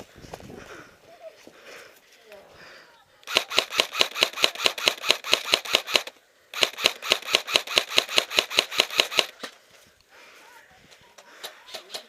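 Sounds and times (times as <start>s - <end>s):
airsoft rifle firing full auto: 3.2s - 9.4s.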